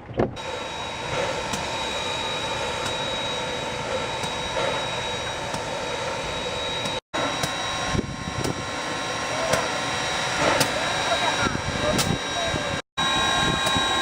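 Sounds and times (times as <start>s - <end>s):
steady whining tones: 0.4s - 14.0s
steam locomotive hissing: 0.4s - 14.0s.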